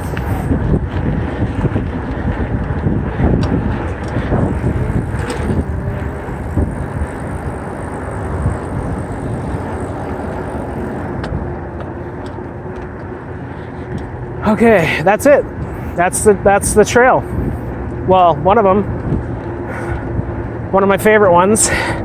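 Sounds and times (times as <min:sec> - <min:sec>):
wind on microphone: 0:00.0 - 0:12.2, 0:15.5 - 0:18.0
tyres rumbling over dirt: 0:01.0 - 0:11.9
bike rattling knocks: 0:03.3 - 0:11.4.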